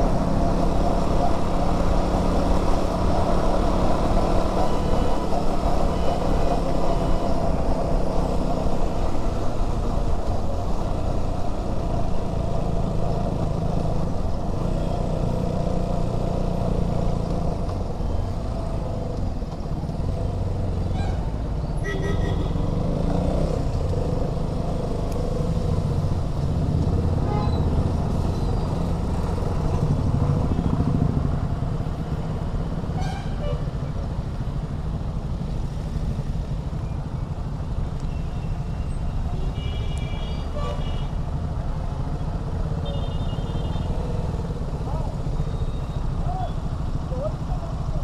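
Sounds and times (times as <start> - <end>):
wind and road noise: 0.0 - 48.0
vehicle horn toots: 21.8 - 22.6, 42.8 - 43.9.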